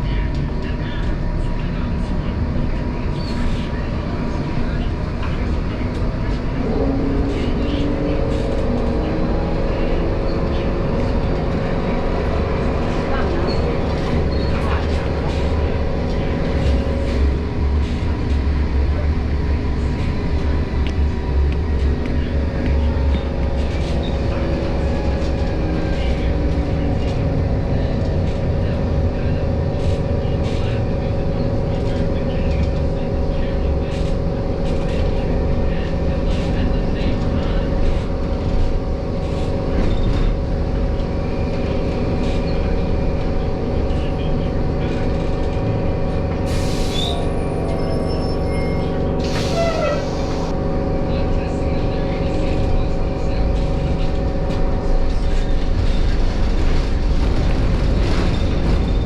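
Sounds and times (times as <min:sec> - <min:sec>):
tram rumbling on tracks: 0:00.0 - 0:59.0.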